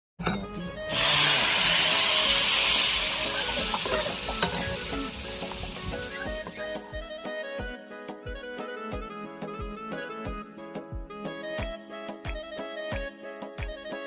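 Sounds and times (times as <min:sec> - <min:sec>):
soft background music: 0:00.2 - 0:14.0
food sizzling in a frying pan: 0:00.9 - 0:06.9.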